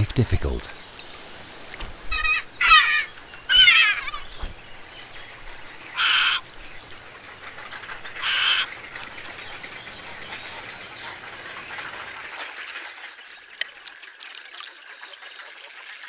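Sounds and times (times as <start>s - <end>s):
many faint bird calls: 0.0s - 13.6s
loud bird calls: 1.8s - 12.2s.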